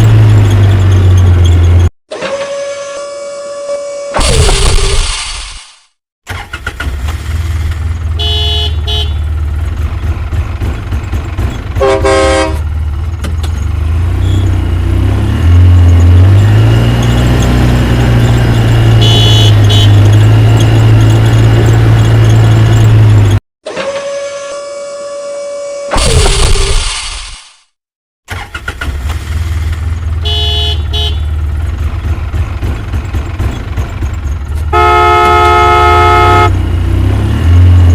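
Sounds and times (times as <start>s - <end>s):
truck engine rumbling: 0.0s - 4.9s, 6.3s - 23.4s, 28.3s - 37.9s
vehicle horn honking: 8.1s - 9.3s, 11.8s - 12.6s, 18.9s - 20.1s, 30.2s - 31.4s, 34.7s - 36.6s.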